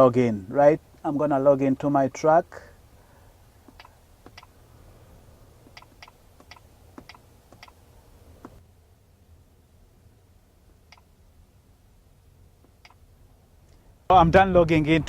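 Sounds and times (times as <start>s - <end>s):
key press clicks: 5.7s - 7.8s.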